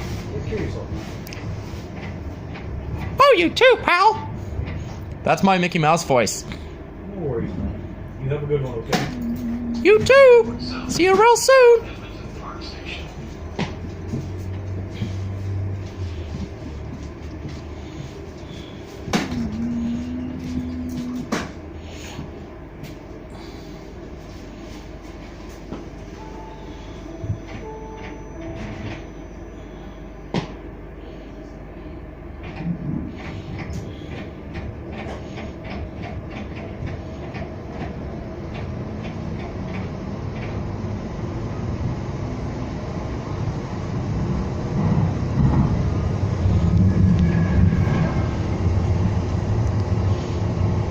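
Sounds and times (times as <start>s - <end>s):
train car low hum: 0.0s - 50.9s
steady low tone: 6.6s - 11.2s, 11.8s - 33.3s.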